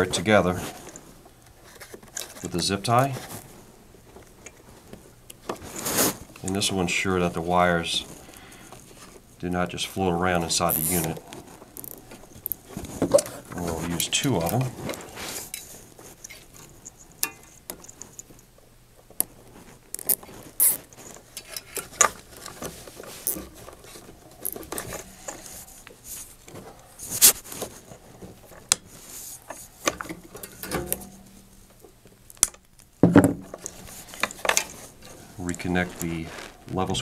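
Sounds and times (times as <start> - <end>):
wires rustling: 0.0 - 37.0
zip ties ratcheting tight: 10.7 - 11.1, 20.0 - 20.8.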